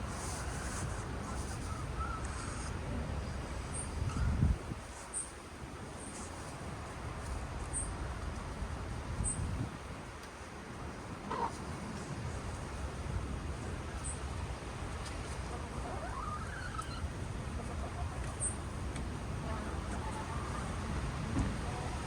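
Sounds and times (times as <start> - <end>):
wind buffeting microphone: 2.8 - 5.0, 8.6 - 10.0
hen clucking softly: 11.2 - 11.8, 15.2 - 22.0.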